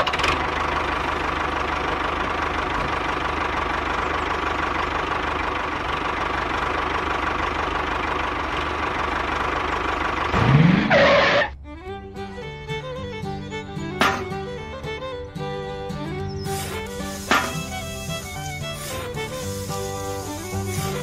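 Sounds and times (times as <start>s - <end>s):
small motor running: 16.4s - 21.0s.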